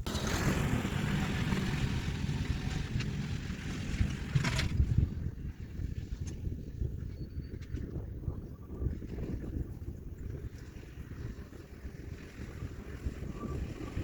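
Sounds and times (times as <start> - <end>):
brief clatter: 0.0 - 5.2
tractor diesel engine running: 0.0 - 5.8
wind buffeting microphone: 0.0 - 14.0.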